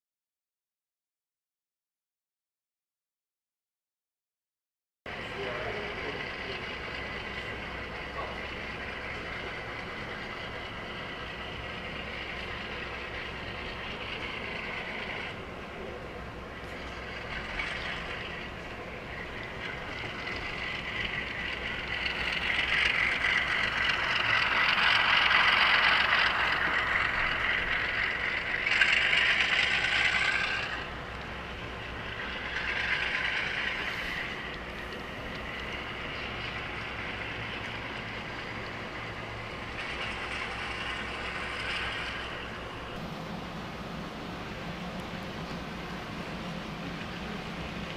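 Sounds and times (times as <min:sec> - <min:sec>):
model train wheels rolling on rails: 0:05.1 - 0:47.9.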